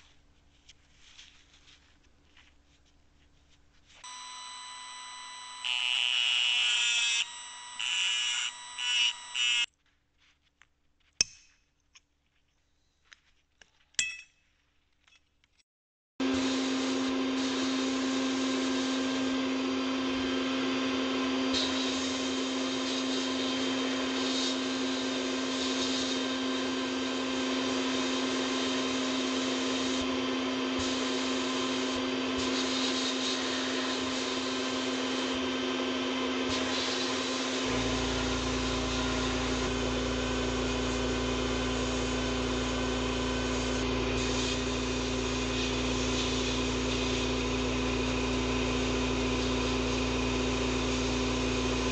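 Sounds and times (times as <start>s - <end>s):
sandblaster hissing: 21.6s - 26.6s, 28.0s - 30.1s, 30.8s - 35.4s, 36.5s - 39.8s, 40.4s - 47.6s.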